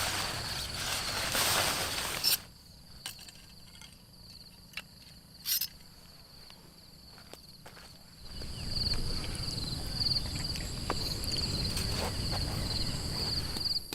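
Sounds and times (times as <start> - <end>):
loud rustling hiss: 0.0 - 2.5
high-pitched insect trill: 0.0 - 13.9.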